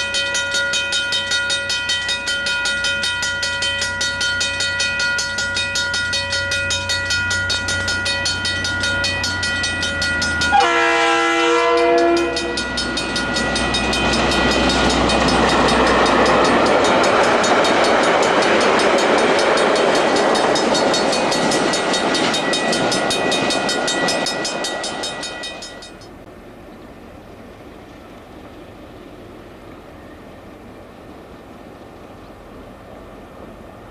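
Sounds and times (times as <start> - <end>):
diesel locomotive engine throbbing: 0.0 - 26.9
train rolling past: 0.0 - 33.9
train horn: 10.4 - 12.8.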